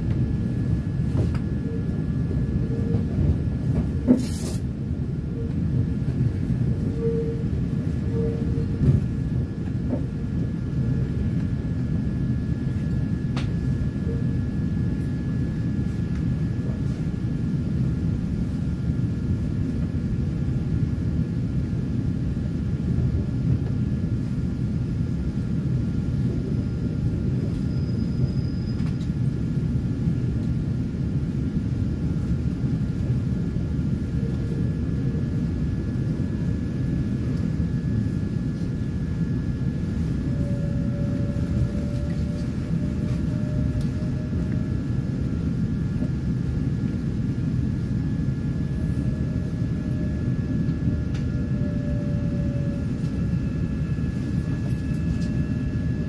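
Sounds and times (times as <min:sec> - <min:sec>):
train carriage low rumble: 0:00.0 - 0:56.0
faint high whine: 0:22.3 - 0:56.0.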